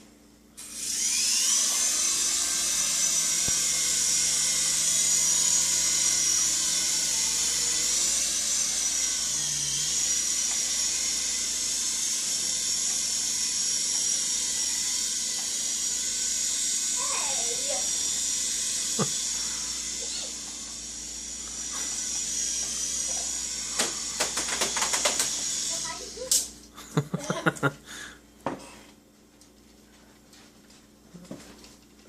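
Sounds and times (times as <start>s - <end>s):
toy helicopter rotor whine: 0.6s - 26.5s.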